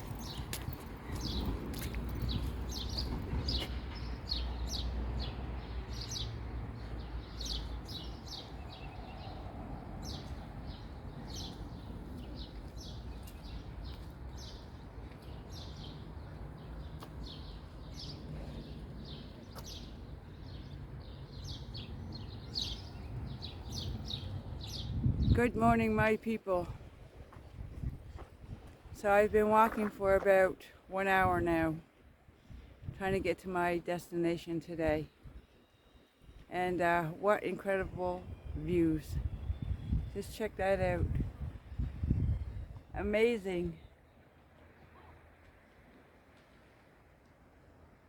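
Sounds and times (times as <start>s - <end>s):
small birds chirping: 0.0s - 25.3s.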